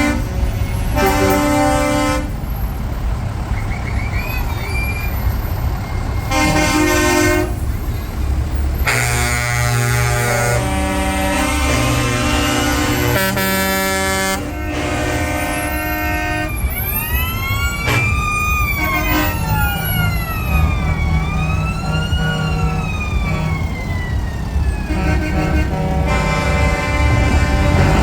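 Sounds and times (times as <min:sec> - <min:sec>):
multi-tone truck horn: 0:00.0 - 0:02.5, 0:06.2 - 0:07.8, 0:08.8 - 0:16.7, 0:17.7 - 0:23.9, 0:24.8 - 0:28.0
truck engines rumbling: 0:00.0 - 0:28.0
siren wailing: 0:15.2 - 0:25.6.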